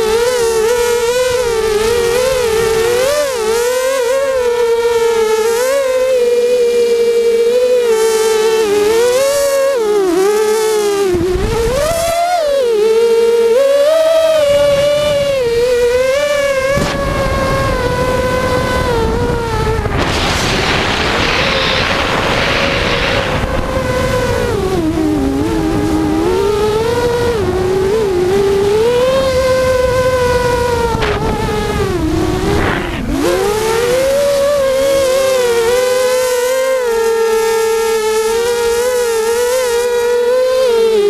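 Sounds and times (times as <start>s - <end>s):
drone propellers whining: 0.0s - 41.0s
rushing noise: 19.5s - 24.6s, 30.9s - 33.9s.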